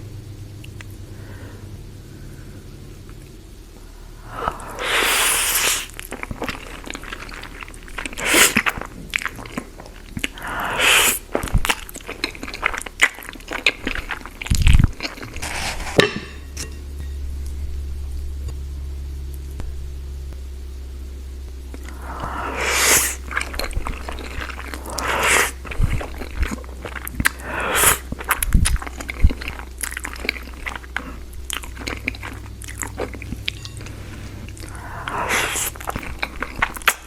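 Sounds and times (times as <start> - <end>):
low steady hum: 0.0 - 37.0
slurping noodles: 4.2 - 16.1, 21.8 - 37.0
crunchy chewing: 4.3 - 16.5, 21.7 - 37.0.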